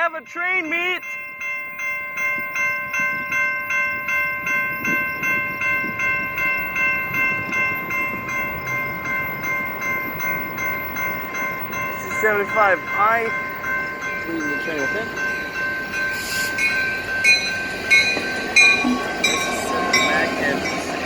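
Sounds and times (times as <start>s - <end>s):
crossing bell ringing: 0.0s - 21.0s
train rumbling: 1.7s - 21.0s.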